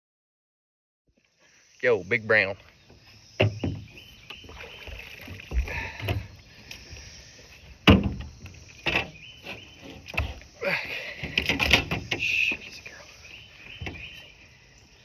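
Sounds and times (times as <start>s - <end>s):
water splashing: 2.6s - 14.7s
knocks and thumps: 3.4s - 6.4s, 7.7s - 10.5s, 11.2s - 12.7s, 13.8s - 14.2s.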